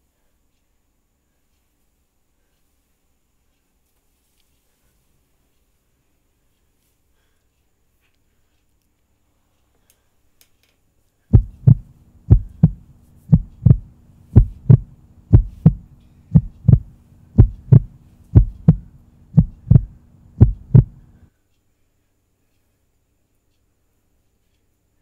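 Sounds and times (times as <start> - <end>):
steady low hum: 11.2 - 21.4
heartbeat thumps: 11.3 - 21.2.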